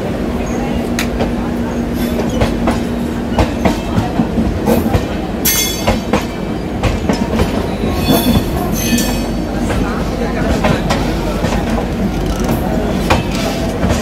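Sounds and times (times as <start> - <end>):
train wheels clacking over rail joints: 2.0 - 14.0.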